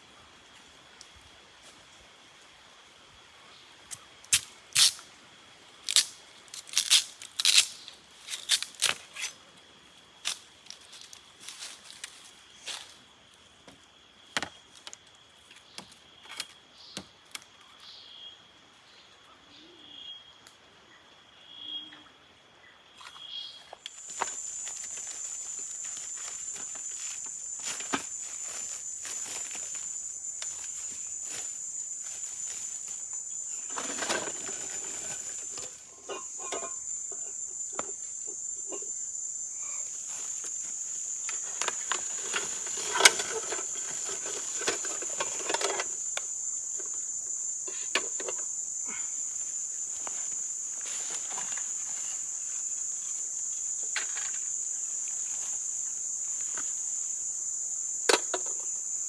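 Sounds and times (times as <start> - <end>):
insect trilling: 23.1 - 59.0.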